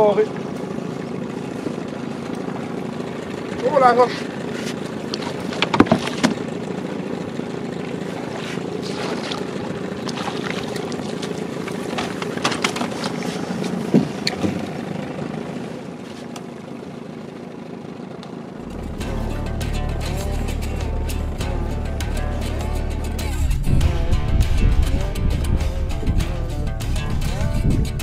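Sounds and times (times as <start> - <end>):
knocks and clatter in boat: 0.0 - 18.6
outboard motor running: 0.0 - 28.0
background music: 18.6 - 28.0.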